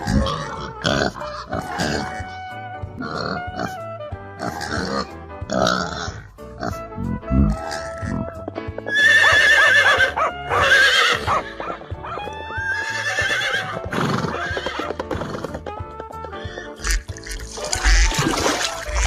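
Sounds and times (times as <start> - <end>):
background music: 0.0 - 19.0
horse whinnying: 7.3 - 15.8, 16.4 - 19.0.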